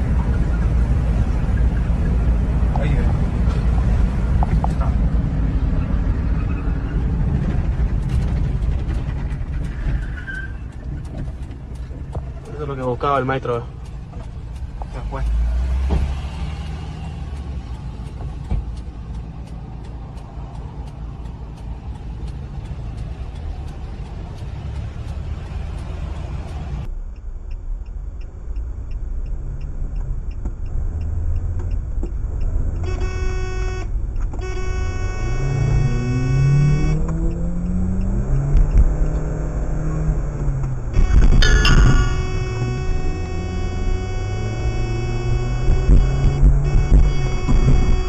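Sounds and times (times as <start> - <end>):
car road and engine noise: 0.0 - 48.0
light ticking: 7.9 - 34.8
car horn: 32.8 - 37.0, 40.9 - 48.0
engine note rising and falling: 34.7 - 48.0.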